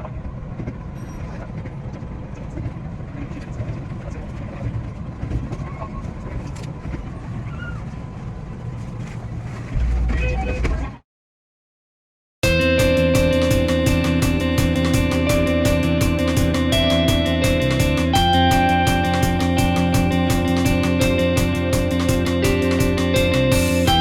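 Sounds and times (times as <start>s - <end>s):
loud low rumble: 12.4s - 24.0s.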